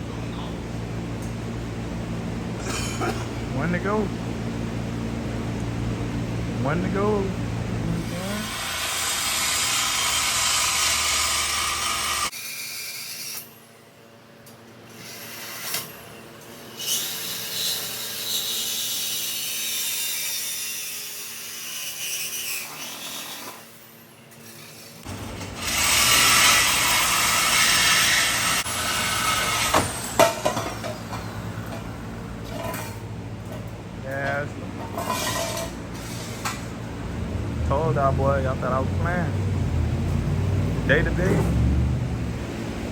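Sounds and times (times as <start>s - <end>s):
power tools cutting metal: 6.6s - 13.8s, 14.9s - 33.0s, 34.2s - 36.8s.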